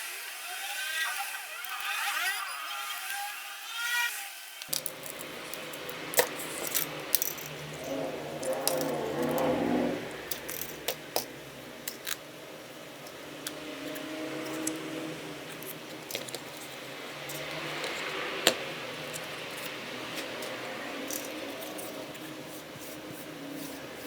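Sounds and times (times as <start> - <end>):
small tools clicking and tapping: 4.6 - 12.3, 13.0 - 23.1.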